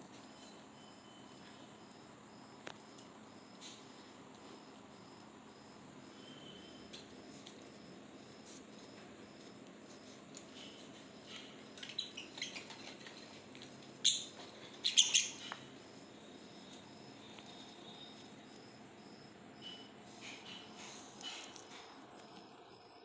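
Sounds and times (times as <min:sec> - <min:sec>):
lovebirds chirping: 0:14.0 - 0:15.7.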